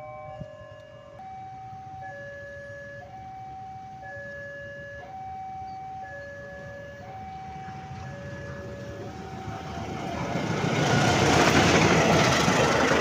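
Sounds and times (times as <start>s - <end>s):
level crossing two-tone alarm: 0.0s - 10.1s.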